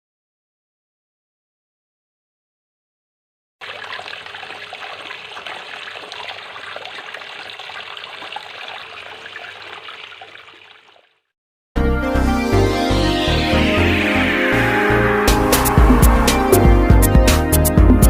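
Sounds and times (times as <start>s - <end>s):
fountain water trickling: 3.6s - 11.3s.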